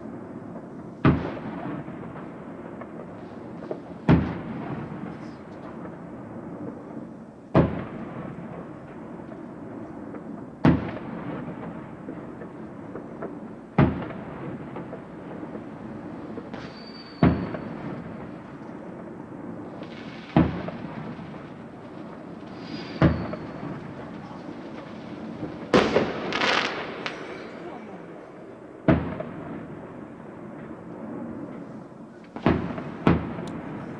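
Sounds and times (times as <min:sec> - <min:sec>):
fireworks bursting with echo: 0:00.0 - 0:33.9
rumble of distant fireworks: 0:00.0 - 0:33.9
high firework whistle: 0:16.5 - 0:18.0, 0:22.4 - 0:27.9.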